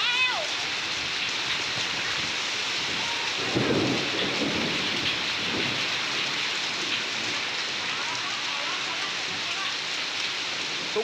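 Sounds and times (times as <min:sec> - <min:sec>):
heavy rain pouring: 0:00.0 - 0:11.0
low rumble of thunder: 0:01.5 - 0:08.5.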